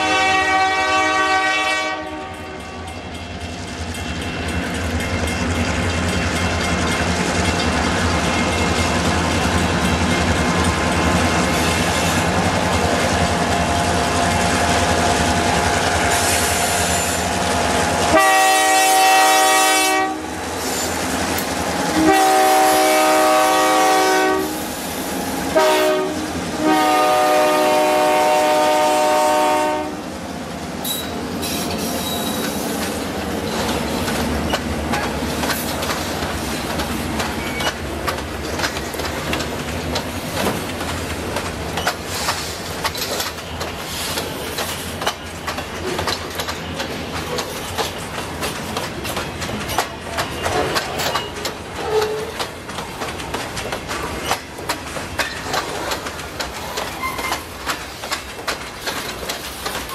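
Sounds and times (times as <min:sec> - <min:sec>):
locomotive air horn blasts: 0:00.0 - 0:02.9, 0:18.1 - 0:20.3, 0:21.9 - 0:24.7, 0:25.5 - 0:30.0
diesel locomotives running: 0:00.0 - 0:59.9
train wheels clicking over rail joints: 0:02.6 - 0:59.9.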